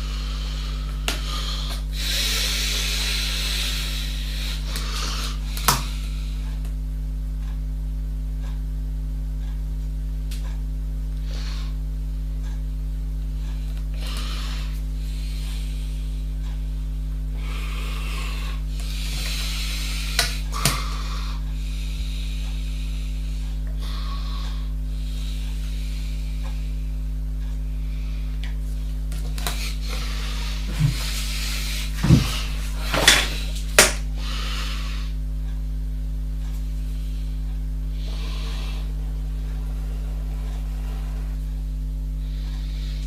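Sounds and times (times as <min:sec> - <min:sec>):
mains hum: 0:00.0 - 0:43.0.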